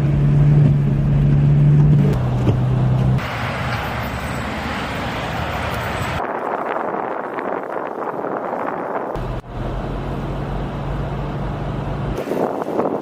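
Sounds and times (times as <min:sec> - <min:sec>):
rushing traffic noise: 0:00.0 - 0:13.0
low engine drone: 0:09.2 - 0:12.4.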